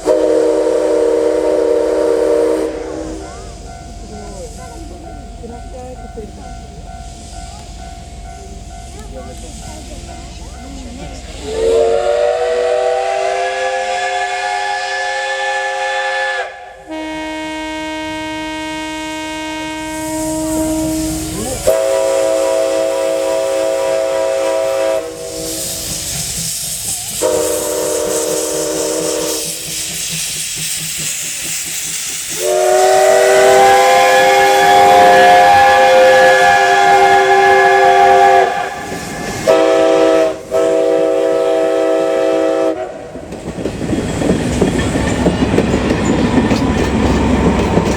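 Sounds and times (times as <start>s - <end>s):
steam locomotive whistle blasts: 0.0s - 4.1s, 11.4s - 30.1s, 32.3s - 43.1s
steam hissing: 0.0s - 17.4s, 18.0s - 47.9s.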